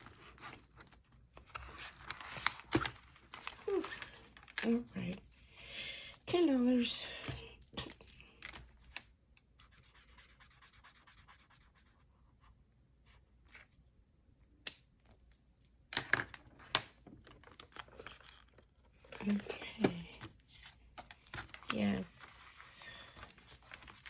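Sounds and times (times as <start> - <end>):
paper rustling: 0.0 - 4.8, 22.9 - 24.0.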